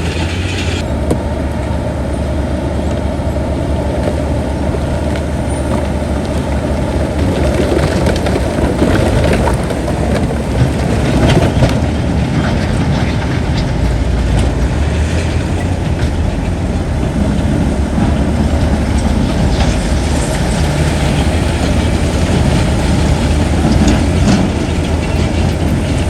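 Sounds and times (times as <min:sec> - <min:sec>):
heavy diesel machinery running: 0:00.0 - 0:26.0.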